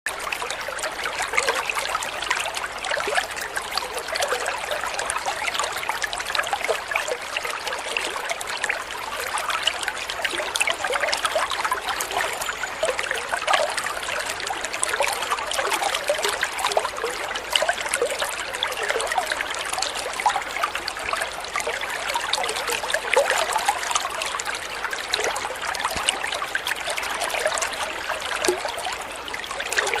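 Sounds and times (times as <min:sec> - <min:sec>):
small waterfall splashing: 0:00.1 - 0:30.0.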